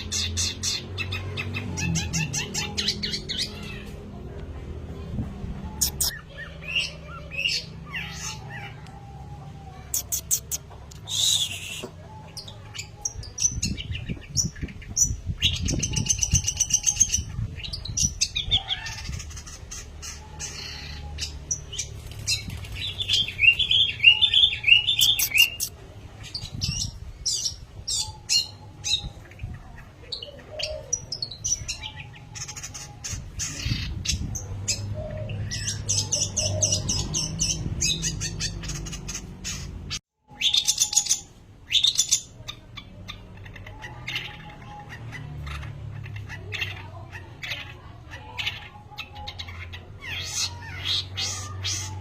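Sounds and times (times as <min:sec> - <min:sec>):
bird wings fluttering: 0:22.0 - 0:23.1.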